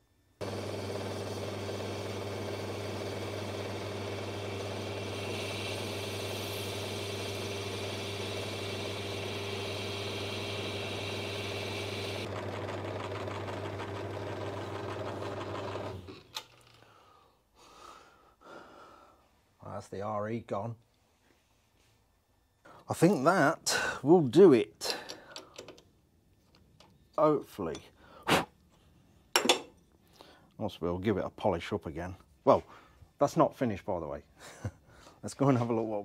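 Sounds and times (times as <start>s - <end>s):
metal lathe motor hum: 0.4s - 16.2s
lathe winding down: 0.4s - 16.4s
cutting tool hissing on metal: 3.9s - 12.3s.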